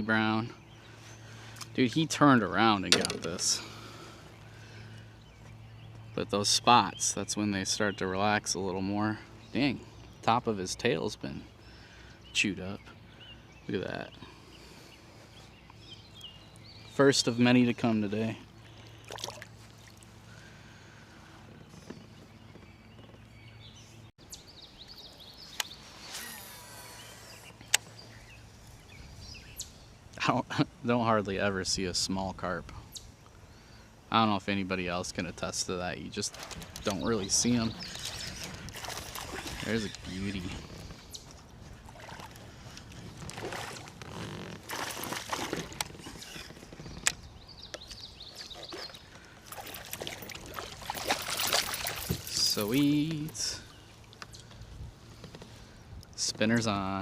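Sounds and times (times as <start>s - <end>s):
birds chirping: 0.0s - 57.0s
sharp click: 2.9s - 3.4s
water splashing and dripping: 38.0s - 40.0s, 49.4s - 52.9s.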